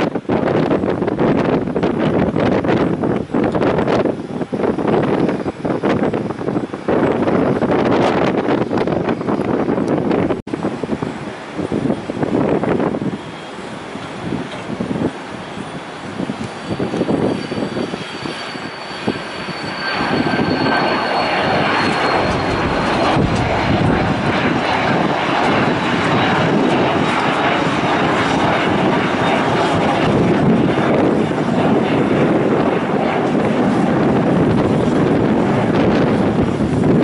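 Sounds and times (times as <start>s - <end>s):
airliner engines rushing: 0.0s - 37.0s
faint high whine: 13.0s - 26.3s.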